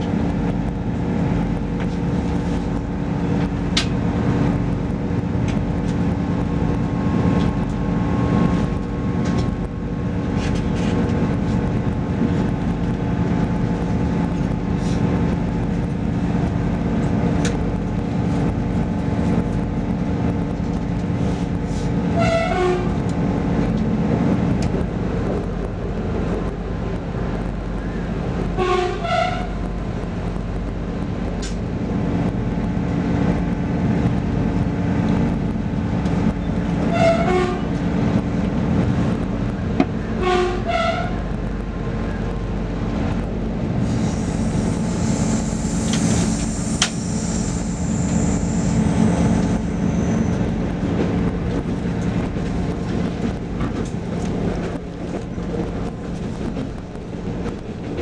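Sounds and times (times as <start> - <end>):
train rumble from inside carriage: 0.0 - 58.0.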